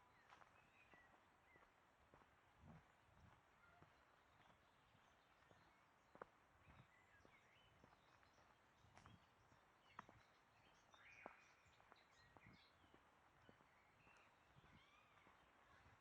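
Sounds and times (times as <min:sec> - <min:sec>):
faint bird chirps: 0:13.5 - 0:16.0.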